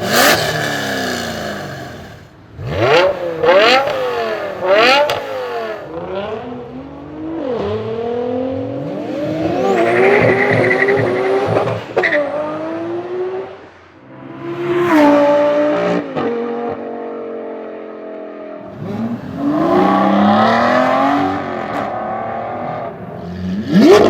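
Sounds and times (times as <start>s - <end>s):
supercar engine revving: 0.0s - 13.6s
high whine: 9.2s - 11.9s.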